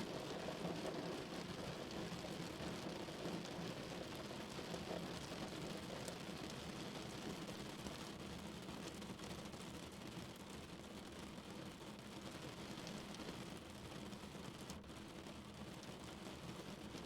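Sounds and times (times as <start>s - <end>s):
rain on a car: 0.0s - 17.0s.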